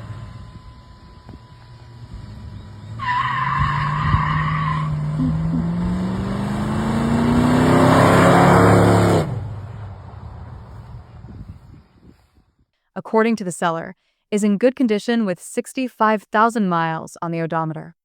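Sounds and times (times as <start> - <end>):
car engine revving: 0.0 - 11.0
tires squealing: 1.9 - 9.4.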